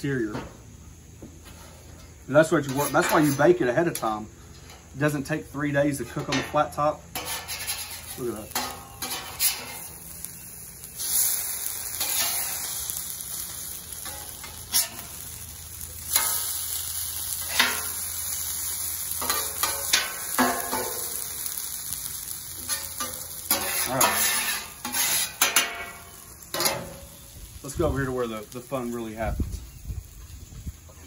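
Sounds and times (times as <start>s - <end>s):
potatoes sizzling on a griddle: 0.0s - 31.0s
metal spatulas scraping and clacking: 2.6s - 4.9s, 6.1s - 9.9s, 12.0s - 12.6s, 22.6s - 26.9s.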